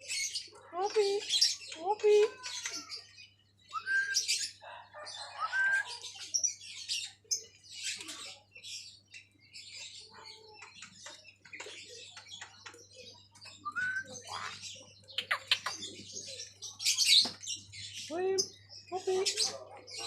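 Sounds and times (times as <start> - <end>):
starling chattering calls: 9.7 - 20.0.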